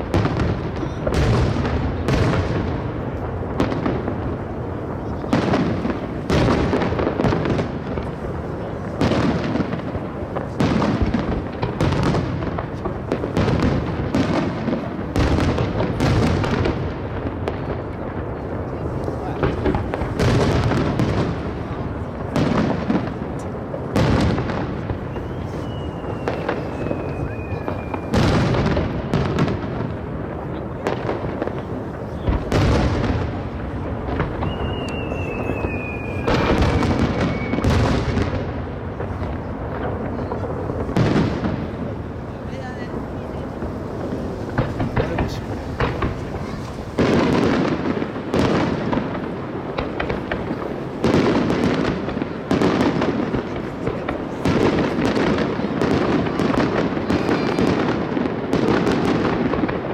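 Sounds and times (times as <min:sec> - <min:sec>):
fireworks booming and crackling: 0:00.0 - 0:59.9
high falling whistle: 0:25.1 - 0:28.1, 0:34.4 - 0:37.6
firework shells bursting: 0:30.9 - 0:42.2, 0:43.4 - 0:55.6.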